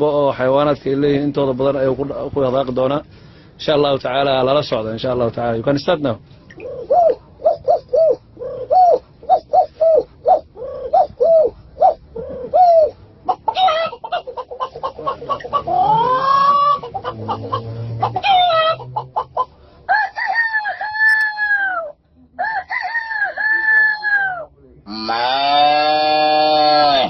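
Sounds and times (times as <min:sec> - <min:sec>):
person imitating chicken clucks: 0:06.6 - 0:19.5, 0:20.2 - 0:27.0
person imitating rooster crow: 0:19.9 - 0:27.0.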